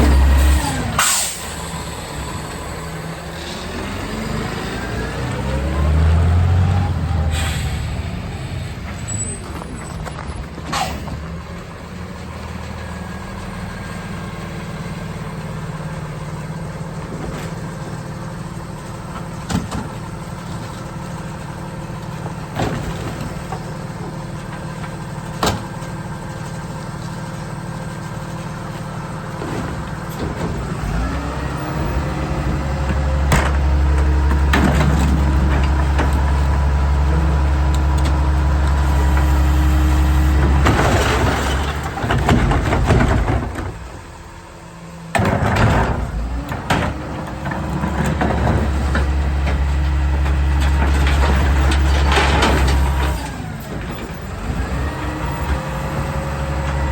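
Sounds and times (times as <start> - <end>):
garbage truck engine: 0.0 - 56.9
bins knocking and clanking: 29.3 - 39.4, 40.3 - 44.1, 45.1 - 55.7.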